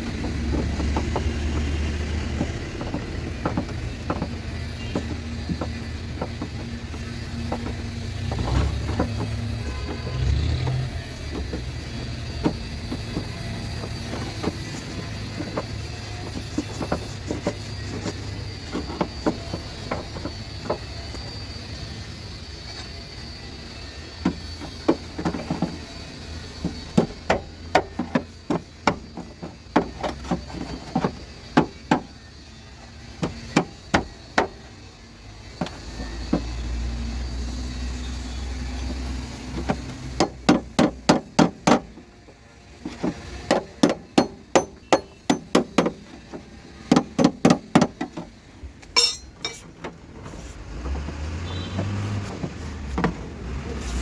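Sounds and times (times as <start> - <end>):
hammer striking metal: 49.0 - 49.7.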